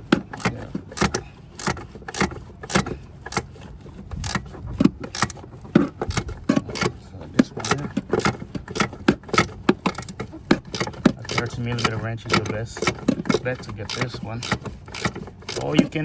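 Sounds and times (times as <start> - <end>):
wrench clicking on metal: 7.6 - 15.9.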